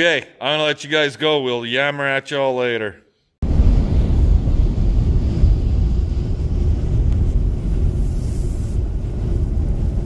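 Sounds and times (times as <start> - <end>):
vehicle engine rumble: 3.4 - 10.0
wind noise on microphone: 3.4 - 10.0.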